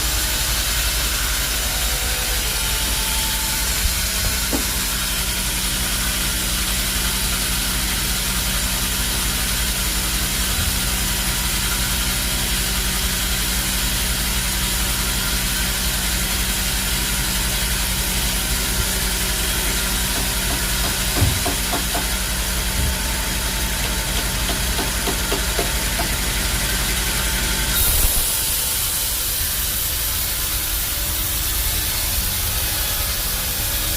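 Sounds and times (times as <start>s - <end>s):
sawmill machinery humming: 0.0s - 33.9s
knock: 4.5s - 4.8s, 20.1s - 22.1s, 23.8s - 26.1s.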